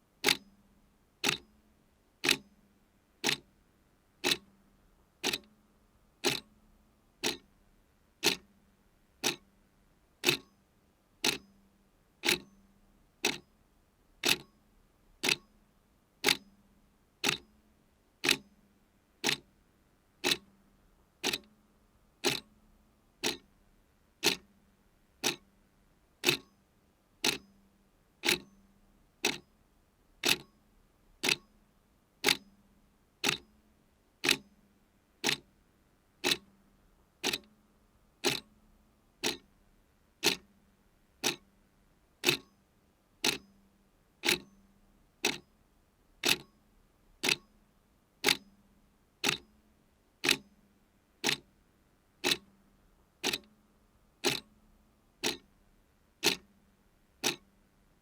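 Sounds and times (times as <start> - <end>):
clock ticking: 0.2 - 0.4, 1.2 - 1.4, 2.2 - 2.4, 3.2 - 3.4, 4.2 - 4.4, 5.2 - 5.5, 6.2 - 6.5, 7.2 - 7.4, 8.2 - 8.4, 9.2 - 9.4, 10.2 - 10.5, 11.2 - 11.4, 12.2 - 12.5, 13.2 - 13.4, 14.2 - 14.5, 15.2 - 15.4, 17.2 - 17.4, 18.2 - 18.4, 19.2 - 19.4, 20.2 - 20.4, 21.2 - 21.5, 22.2 - 22.5, 23.2 - 23.5, 24.2 - 24.4, 25.2 - 25.4, 26.2 - 26.5, 27.2 - 27.4, 28.2 - 28.5, 29.2 - 29.4, 30.2 - 30.5, 31.2 - 31.5, 32.2 - 32.4, 33.2 - 33.4, 34.2 - 34.4, 35.2 - 35.4, 36.2 - 36.5, 37.2 - 37.5, 38.2 - 38.5, 39.2 - 39.5, 40.2 - 40.5, 41.2 - 41.4, 42.2 - 42.5, 43.2 - 43.4, 44.2 - 44.5, 45.2 - 45.4, 46.2 - 46.5, 47.2 - 47.5, 48.2 - 48.4, 49.2 - 49.4, 50.2 - 50.4, 51.2 - 51.4, 52.2 - 52.5, 53.2 - 53.5, 54.2 - 54.5, 55.2 - 55.5, 56.2 - 56.5, 57.2 - 57.5.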